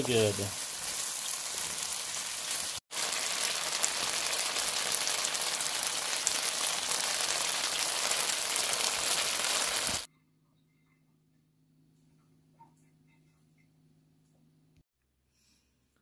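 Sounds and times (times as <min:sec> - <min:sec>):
shrimp sizzling in a wok: 0:00.0 - 0:10.1.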